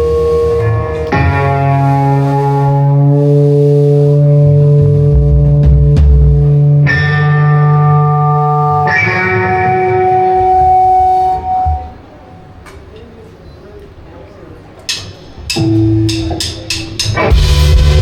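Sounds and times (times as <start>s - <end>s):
guitar chords: 0.0s - 12.4s, 15.4s - 18.0s
low bass note: 17.2s - 18.0s.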